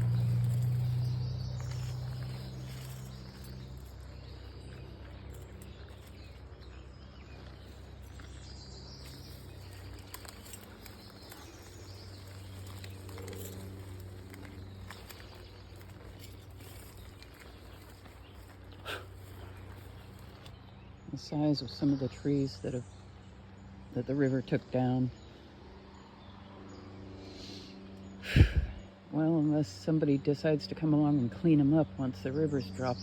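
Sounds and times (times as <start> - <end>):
insect calls: 0.0 - 20.5
distant traffic hum: 0.0 - 33.0
vehicle engine drone: 0.0 - 33.0.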